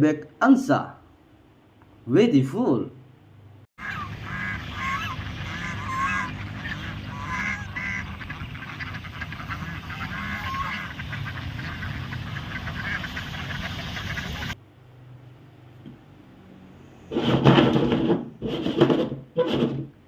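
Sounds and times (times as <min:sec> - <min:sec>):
geese honking: 0:03.8 - 0:14.6.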